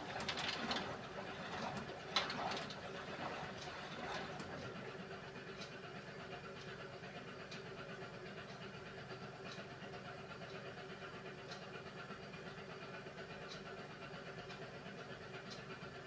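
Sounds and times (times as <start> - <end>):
washing machine motor and drum hum: 0.0 - 7.8.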